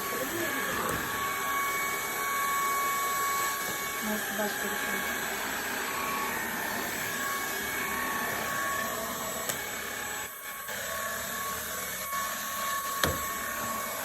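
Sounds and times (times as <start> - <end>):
vacuum cleaner motor whine: 0.0 - 14.0.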